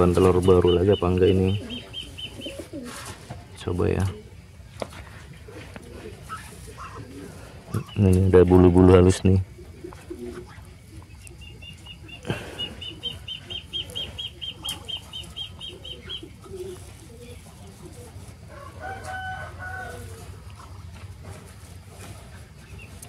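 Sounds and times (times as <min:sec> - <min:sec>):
soft low rustle: 0:16.4 - 0:23.0.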